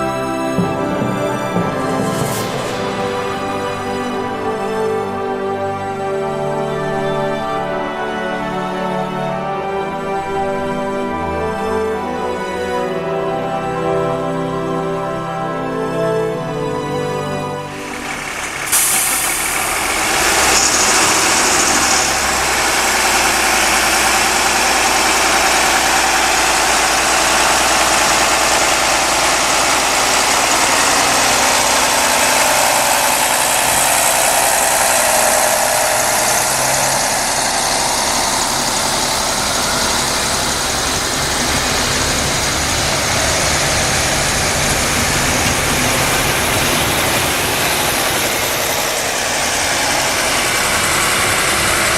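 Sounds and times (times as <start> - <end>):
diesel train engine running: 0.0 - 51.9
even rushing noise: 0.7 - 5.2, 17.7 - 51.9.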